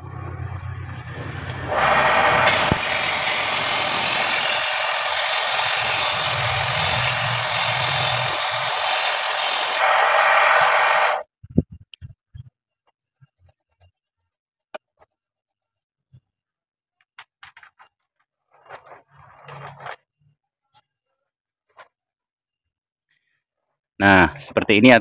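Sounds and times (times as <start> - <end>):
lathe tool scraping hiss: 1.6 - 11.2.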